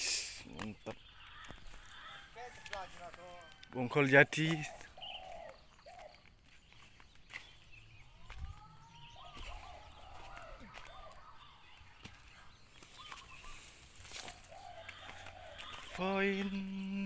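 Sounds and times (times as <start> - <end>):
fowl-like bird calls: 1.2 - 3.6, 12.8 - 16.8.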